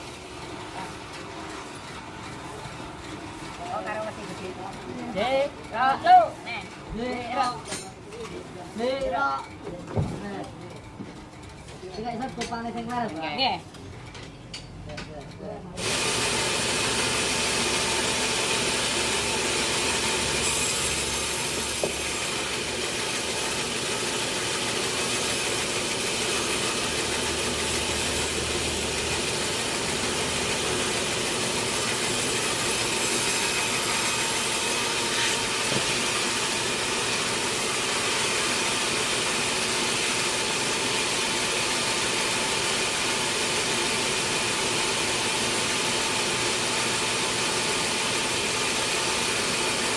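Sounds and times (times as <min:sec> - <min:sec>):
motor running: 0:15.8 - 0:49.9
saw cutting through log: 0:15.8 - 0:49.9.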